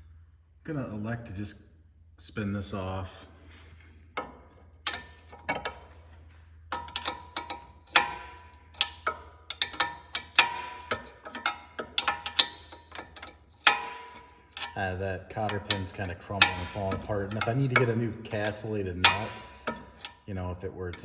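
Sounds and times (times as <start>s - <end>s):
wrench turning rusted nut: 4.2s - 6.0s, 6.7s - 20.3s.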